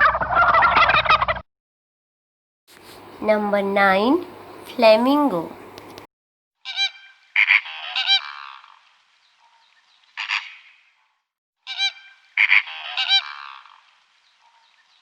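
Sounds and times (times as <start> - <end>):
flamingos honking: 6.7 - 8.7, 10.2 - 10.7, 11.7 - 13.8.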